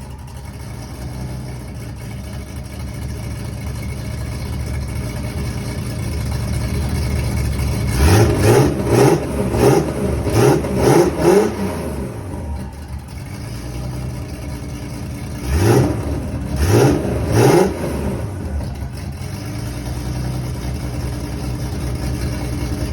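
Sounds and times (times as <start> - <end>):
car engine idling: 0.0 - 22.9
engine throttle blips: 0.0 - 22.9.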